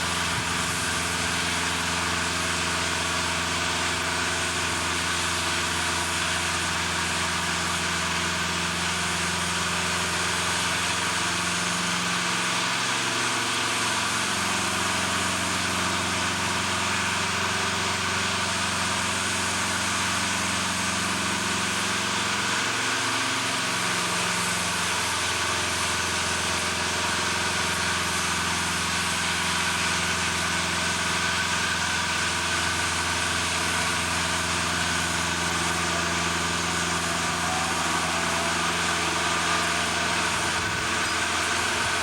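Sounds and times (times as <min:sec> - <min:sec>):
engine running: 0:00.0 - 0:42.0.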